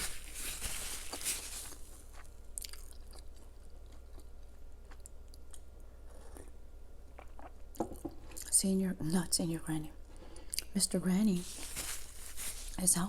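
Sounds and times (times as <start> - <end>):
chewing crunchy food: 0.0 - 8.5.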